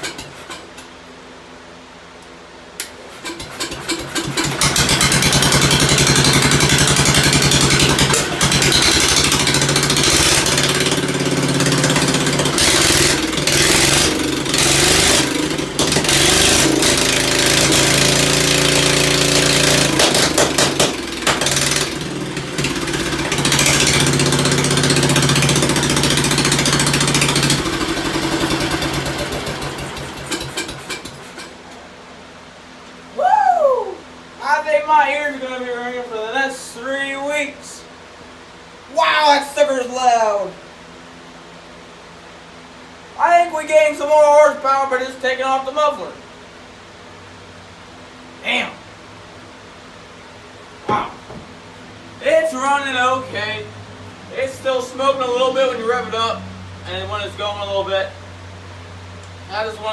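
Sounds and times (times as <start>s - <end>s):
tractor engine running rough: 3.0s - 31.6s.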